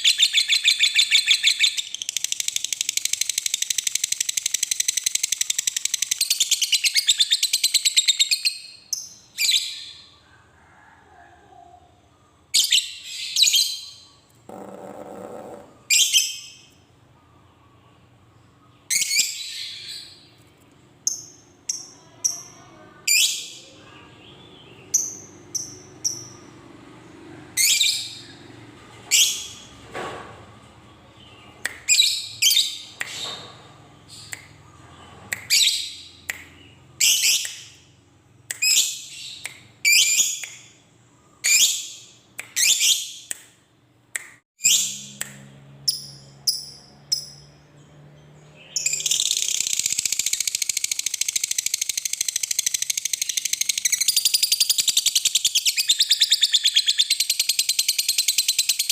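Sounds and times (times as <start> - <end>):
lovebird chirps and screeches: 12.6 - 16.7, 38.6 - 40.5, 41.4 - 42.0, 42.6 - 43.3, 44.6 - 45.1, 48.7 - 58.9.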